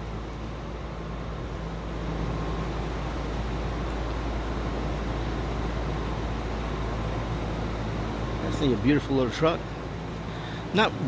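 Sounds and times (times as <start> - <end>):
faint steady hum: 0.0 - 11.0
vehicle rumble: 0.0 - 11.0.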